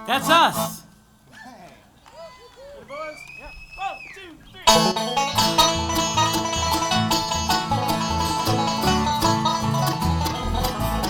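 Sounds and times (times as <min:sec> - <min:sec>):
banjo picking: 0:00.0 - 0:01.0, 0:04.6 - 0:11.0
guitar picking: 0:00.0 - 0:01.0, 0:04.7 - 0:11.0
bluegrass band playing: 0:00.0 - 0:01.2, 0:04.6 - 0:11.0
bass line: 0:04.7 - 0:11.0.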